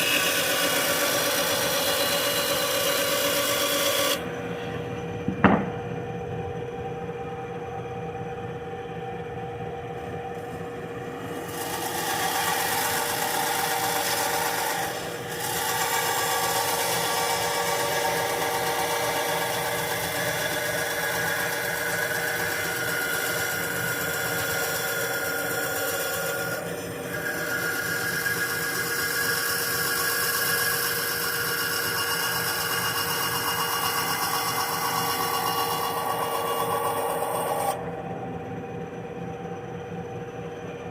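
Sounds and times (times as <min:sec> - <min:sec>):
saw blade rasping through wood: 0:00.0 - 0:04.2, 0:11.3 - 0:37.8
bandsaw motor hum: 0:00.0 - 0:40.8
knock: 0:05.3 - 0:05.8.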